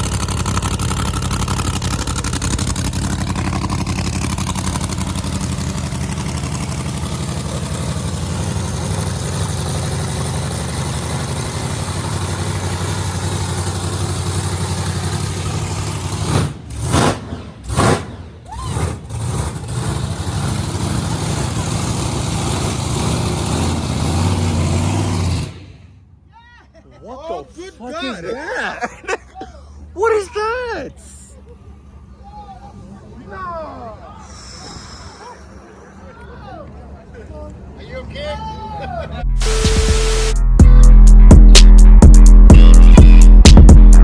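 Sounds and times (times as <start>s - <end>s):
engine revving bursts: 0.0s - 26.1s, 39.2s - 44.0s
car engine idling: 0.0s - 26.3s, 27.4s - 36.1s, 37.6s - 44.0s.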